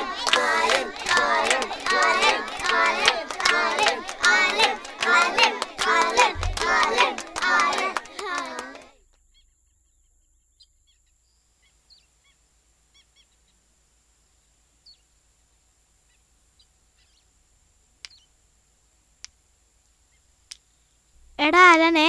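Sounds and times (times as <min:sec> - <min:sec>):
faint birds chirping: 0:09.0 - 0:18.6, 0:19.8 - 0:21.4.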